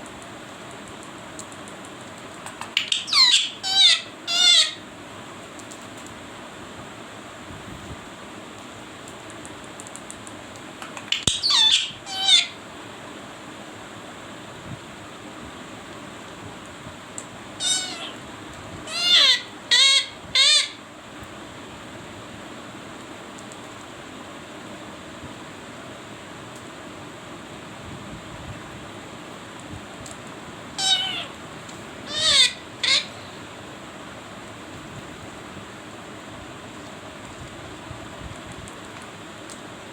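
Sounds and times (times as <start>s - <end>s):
parrot harsh calls: 2.8s - 4.8s, 11.1s - 12.6s, 17.6s - 18.2s, 18.8s - 20.8s, 30.8s - 31.4s, 32.0s - 33.4s.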